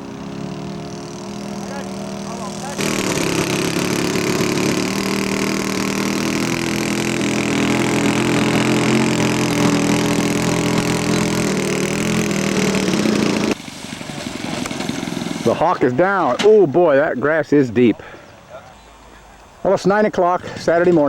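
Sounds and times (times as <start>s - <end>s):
model airplane engine running: 0.0s - 15.6s.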